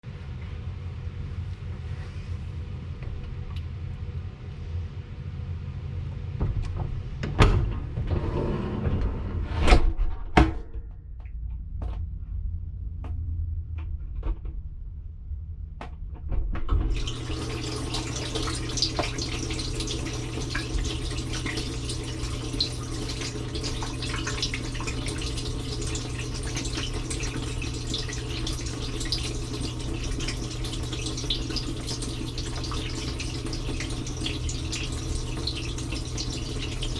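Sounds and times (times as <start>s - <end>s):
dishwasher low hum: 0.0s - 36.9s
wash pump humming: 16.9s - 36.9s
water spraying over dishes: 17.0s - 36.9s.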